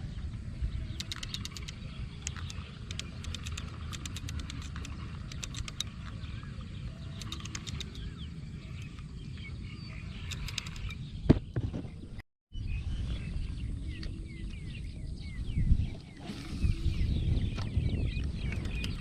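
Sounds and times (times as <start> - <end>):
birds chirping: 0.0 - 19.0
steady low rumble: 0.0 - 19.0
quick ticking bird calls: 0.8 - 11.6, 17.6 - 19.0.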